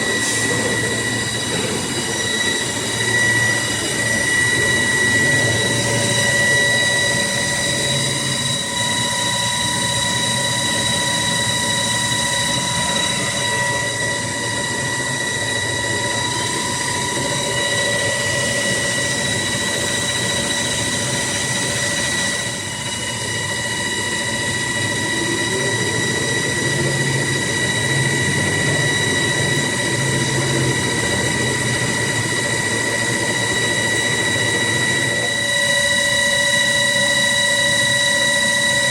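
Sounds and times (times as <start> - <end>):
lathe machine whine: 0.0 - 38.9.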